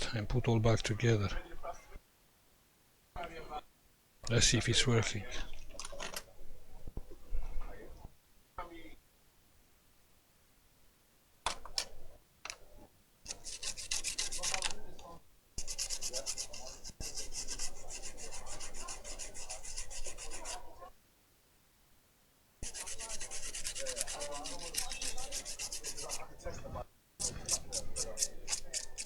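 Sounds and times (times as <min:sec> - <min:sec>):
brush scrubbing circuit board: 0:13.3 - 0:14.8, 0:15.6 - 0:20.6, 0:22.6 - 0:26.3, 0:27.2 - 0:29.0.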